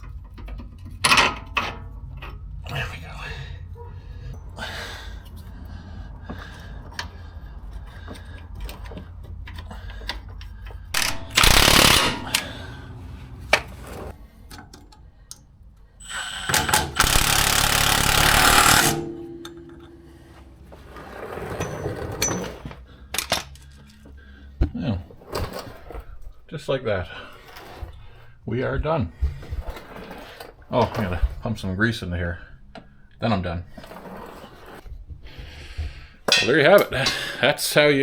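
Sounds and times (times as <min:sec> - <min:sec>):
impact wrench bursts: 0:11.0 - 0:14.2, 0:16.0 - 0:20.8
tool clicks: 0:11.0 - 0:15.4, 0:16.4 - 0:20.2.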